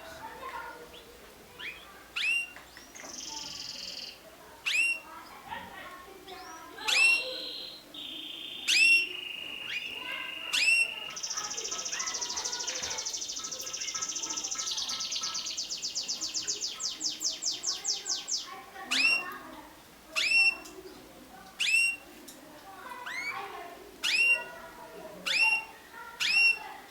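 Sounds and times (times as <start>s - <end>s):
canary singing: 0.9s - 5.2s, 6.3s - 19.5s, 20.1s - 22.3s, 22.9s - 26.9s
sharp bird chirps: 6.9s - 19.2s, 21.6s - 22.0s, 24.0s - 24.5s, 25.3s - 26.6s.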